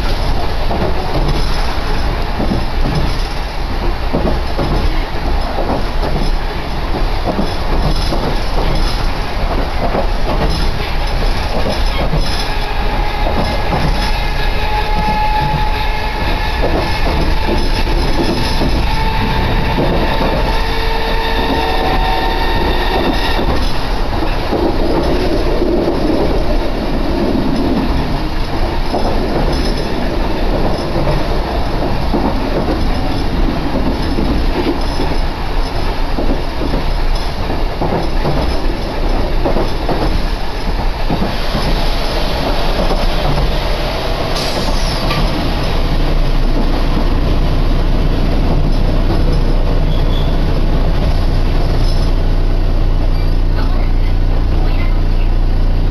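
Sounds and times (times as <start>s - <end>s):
train wheels rumbling on rails: 0.0s - 55.9s
steady tones: 10.8s - 47.6s.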